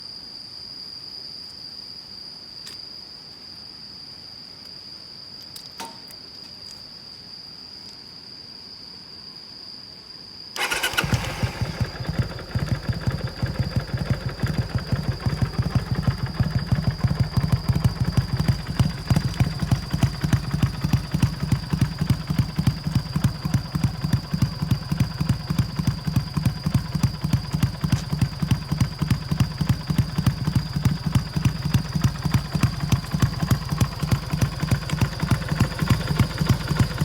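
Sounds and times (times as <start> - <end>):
motorcycle engine starting and idling: 10.6 - 37.0.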